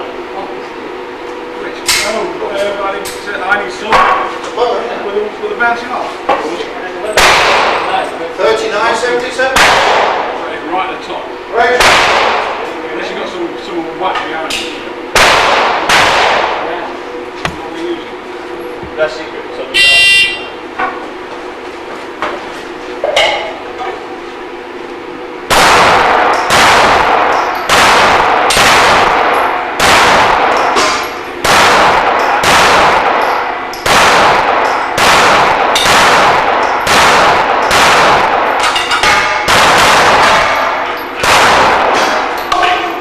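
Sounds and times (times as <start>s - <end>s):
pistol shots: 7.2s - 7.9s, 9.5s - 10.3s, 11.8s - 12.6s, 15.1s - 16.6s, 25.5s - 42.4s
bullets clanging on steel targets: 30.5s - 31.4s, 33.0s - 33.9s, 35.7s - 37.0s, 37.6s - 39.5s.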